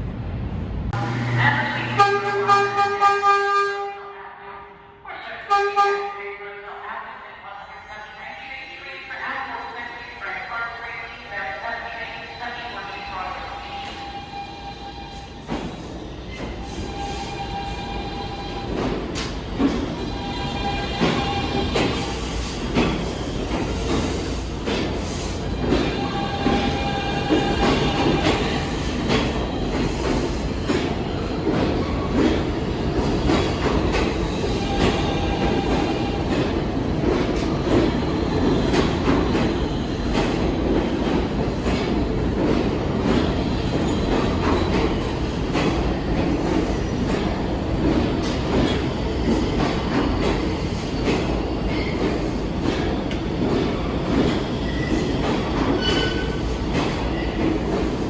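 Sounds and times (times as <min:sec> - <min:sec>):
subway train wheel-on-rail noise: 0:00.0 - 0:58.0
rail clicks: 0:18.0 - 0:58.0.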